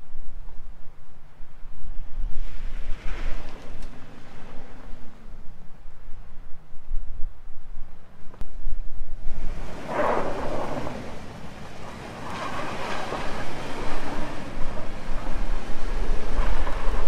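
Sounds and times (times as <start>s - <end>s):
truck driving on snow: 2.4s - 6.4s, 9.3s - 17.0s.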